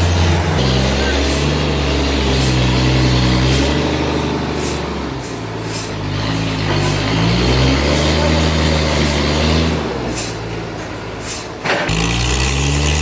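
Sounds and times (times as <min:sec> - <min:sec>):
hissing noise: 0:00.0 - 0:07.1.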